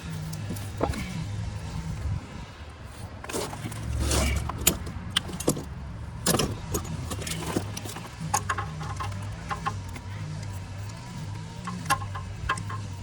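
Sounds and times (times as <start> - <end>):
metal tools clinking and rattling: 3.2 - 13.0.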